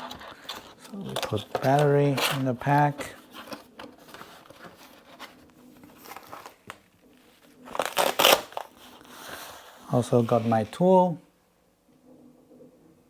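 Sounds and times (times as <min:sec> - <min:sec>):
packaging crinkling scrape: 0:00.0 - 0:06.8, 0:07.7 - 0:10.8
packaging rustling: 0:00.0 - 0:10.8.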